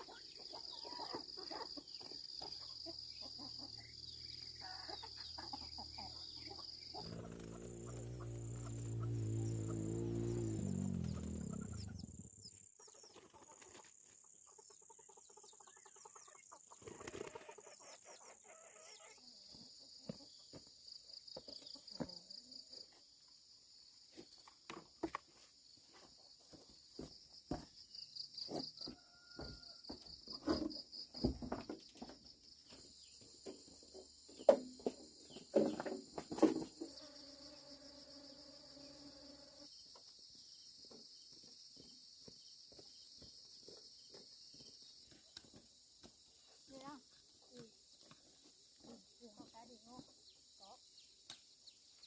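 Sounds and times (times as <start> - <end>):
insects chirring: 1.9 - 12.7, 30.5 - 48.1
low drawn-out pitched sound: 7.0 - 12.5.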